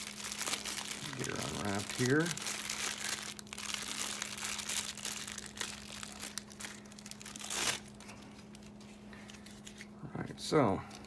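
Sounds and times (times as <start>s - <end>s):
packaging crinkling and tearing: 0.0s - 8.8s.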